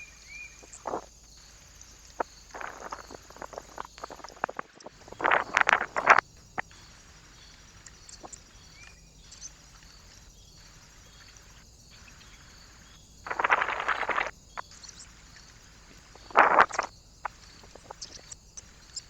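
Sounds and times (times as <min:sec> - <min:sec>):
faint outdoor background: 0:00.0 - 0:19.0
bird wings fluttering: 0:02.5 - 0:06.2, 0:13.3 - 0:14.3.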